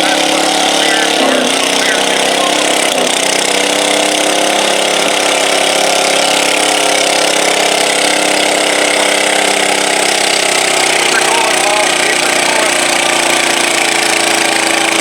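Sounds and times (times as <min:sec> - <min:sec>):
garden tractor engine running: 0:00.0 - 0:15.0.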